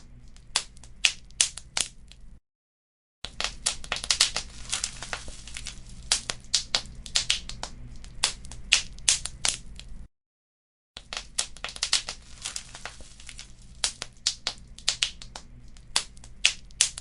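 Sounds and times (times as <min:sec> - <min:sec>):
wood fire crackling: 0:03.3 - 0:10.1, 0:11.0 - 0:17.0
faint low rumble: 0:03.6 - 0:10.1.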